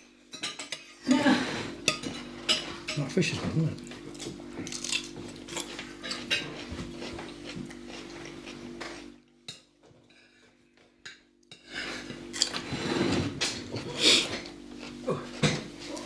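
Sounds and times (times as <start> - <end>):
cutlery and plates clinking: 0.3 - 1.0, 1.8 - 10.4, 11.0 - 16.0.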